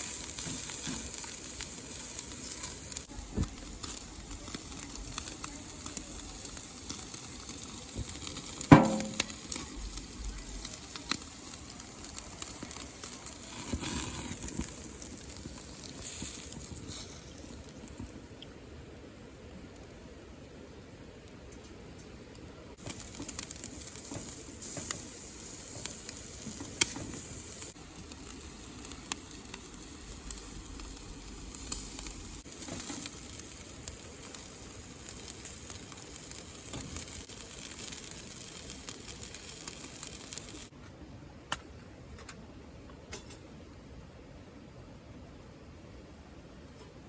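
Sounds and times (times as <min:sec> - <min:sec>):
food sizzling as it fries: 0:00.0 - 0:18.6, 0:22.7 - 0:40.7.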